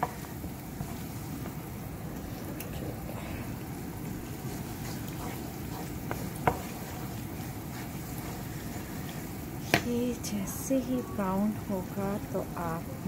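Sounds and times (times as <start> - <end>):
onions sizzling in oil: 0.0 - 13.0
wooden spoon stirring: 0.0 - 13.0
spoon knocking against pan: 5.2 - 6.7.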